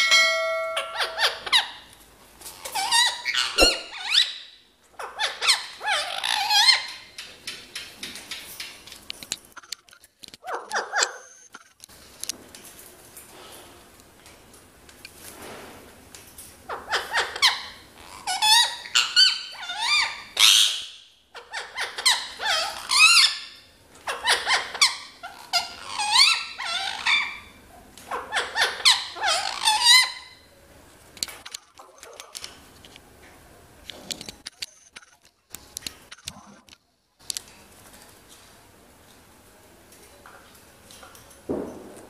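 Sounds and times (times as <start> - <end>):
parrot shrill squeaky calls: 0.4 - 1.8, 2.6 - 7.0, 16.7 - 23.5, 24.1 - 30.4.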